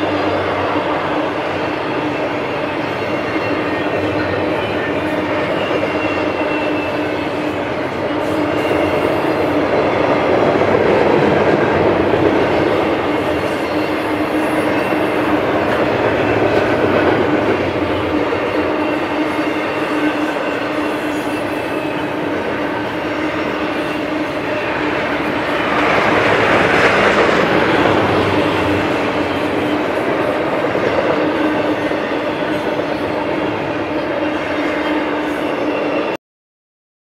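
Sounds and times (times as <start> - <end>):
freight train wheels on rail: 0.0 - 36.2.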